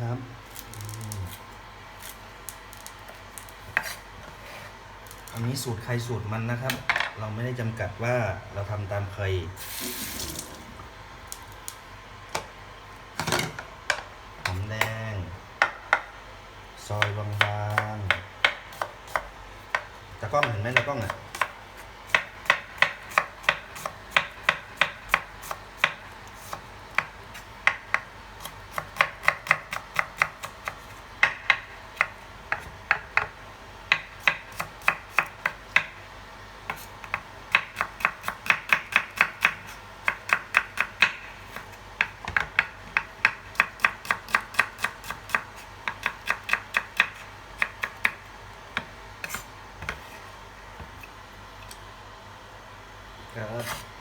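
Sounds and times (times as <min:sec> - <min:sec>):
knife chopping on cutting board: 0:17.0 - 0:35.9, 0:36.7 - 0:48.2.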